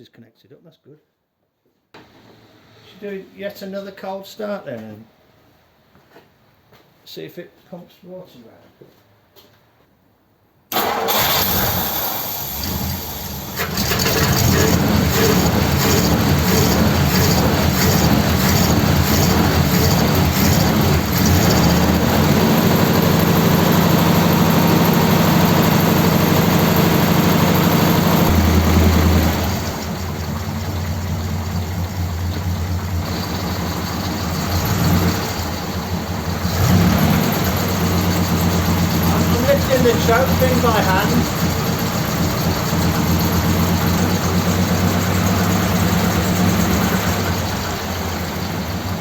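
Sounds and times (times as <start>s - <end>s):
car engine starting and idling: 10.7s - 49.0s.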